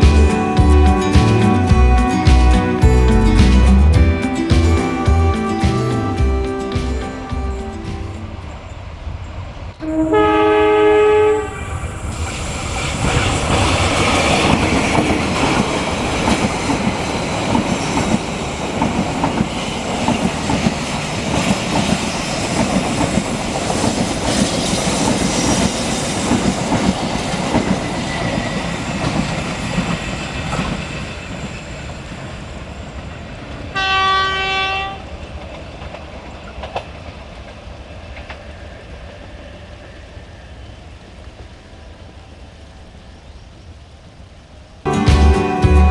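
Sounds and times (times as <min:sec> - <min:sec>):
locomotive horn blast: 0:09.8 - 0:11.8, 0:33.7 - 0:35.0
train wheels clattering on rails: 0:12.0 - 0:40.3.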